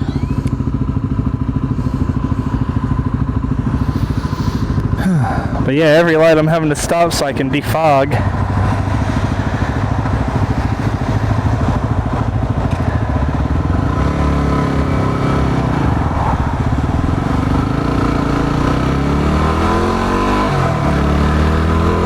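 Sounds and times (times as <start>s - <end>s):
motorcycle engine running: 0.0s - 22.0s
wind noise: 8.2s - 21.0s.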